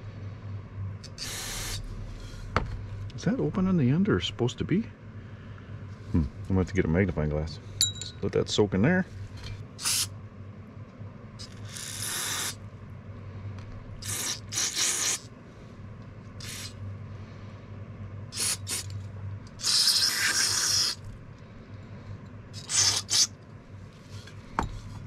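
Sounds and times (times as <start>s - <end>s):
steady low hum: 0.0s - 25.0s
aerosol spray hissing: 1.2s - 1.8s, 9.8s - 10.1s, 11.6s - 12.6s, 14.0s - 15.3s, 16.4s - 16.8s, 18.4s - 18.9s, 19.6s - 21.0s, 22.6s - 23.3s.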